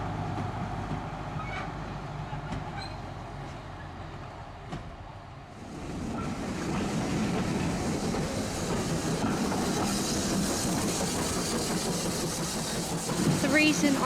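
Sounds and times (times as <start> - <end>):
train rumbling: 0.0 - 14.0
wheels clicking over rail joints: 6.1 - 14.0.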